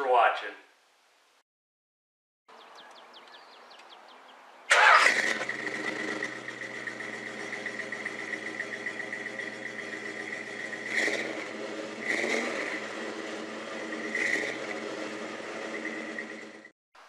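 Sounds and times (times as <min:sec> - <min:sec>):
car engine cranking and starting: 0:04.7 - 0:16.7.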